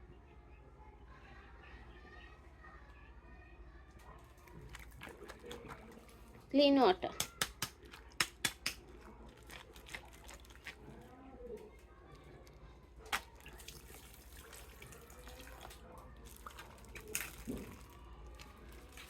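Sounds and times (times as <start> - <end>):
running and splashing water: 4.4 - 6.5, 7.2 - 11.2, 13.0 - 19.0.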